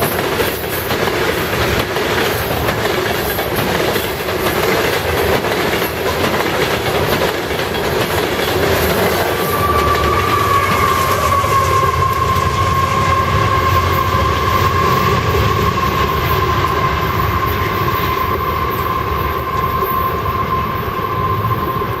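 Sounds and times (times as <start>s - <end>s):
wheels clacking over rail joints: 0.0s - 20.1s
freight cars rumbling: 0.0s - 22.0s
high-pitched squeal: 8.0s - 22.0s.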